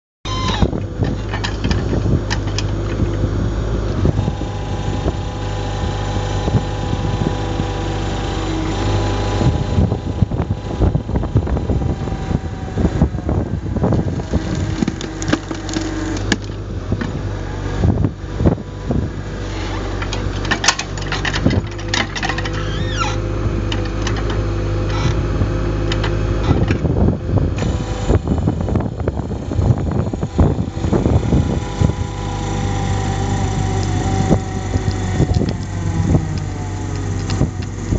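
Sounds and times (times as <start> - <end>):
excavator engine running: 0.3 - 37.9
hydraulic splitter whine: 0.3 - 37.9
wood cracking and knocking: 13.9 - 17.2.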